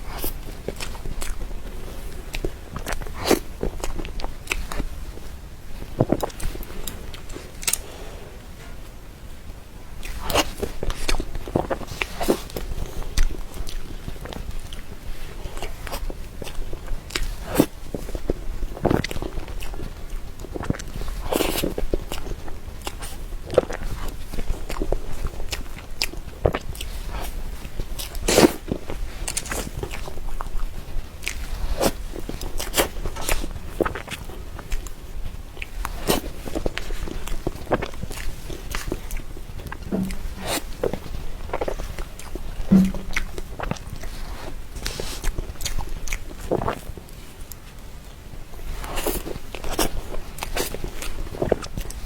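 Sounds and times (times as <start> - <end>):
chewing with wet mouth clicks: 0.0 - 8.1, 10.0 - 52.0
wet mouth smacks: 37.7 - 44.1.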